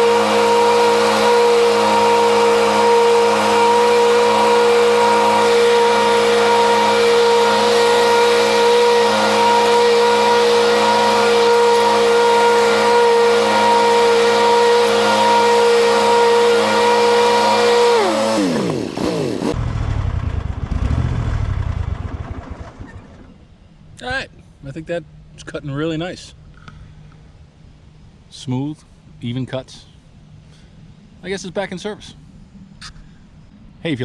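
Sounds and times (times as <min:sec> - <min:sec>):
lawn mower running with blade whine: 0:00.0 - 0:19.6
mower winding down: 0:00.0 - 0:19.6.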